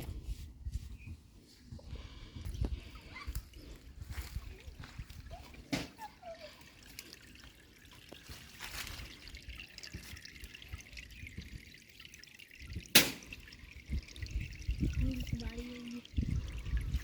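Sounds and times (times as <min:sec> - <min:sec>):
water trickling and dripping: 0:01.8 - 0:17.0
sharp splash: 0:12.9 - 0:13.4.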